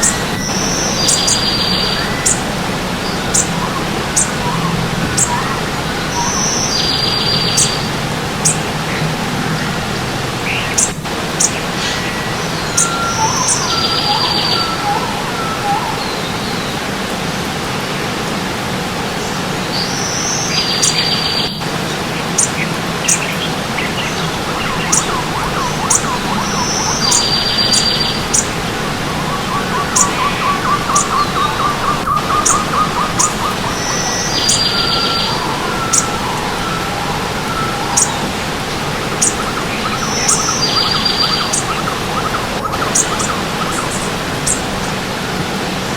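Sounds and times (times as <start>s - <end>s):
birds singing: 0.0s - 18.2s, 19.1s - 45.9s
stream water running: 0.0s - 45.9s
bird high note and buzzy trill: 10.4s - 16.7s, 22.4s - 44.6s.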